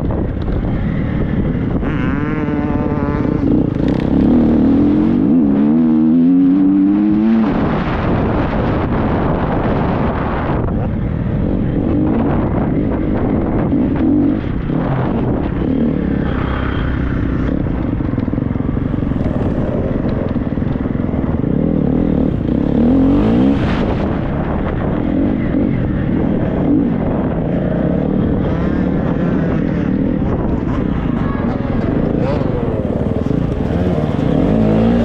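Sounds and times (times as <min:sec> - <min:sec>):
motocross bike engine revving: 0:01.1 - 0:09.1, 0:18.4 - 0:35.0.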